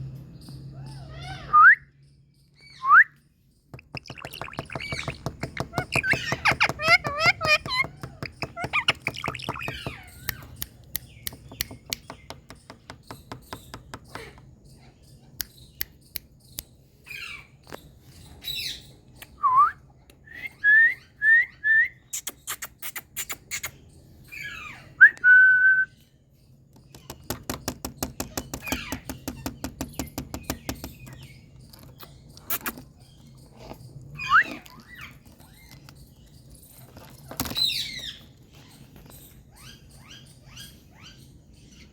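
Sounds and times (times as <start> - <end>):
parakeet rapid clicks: 3.8 - 14.2
parakeet whistling: 3.9 - 10.4.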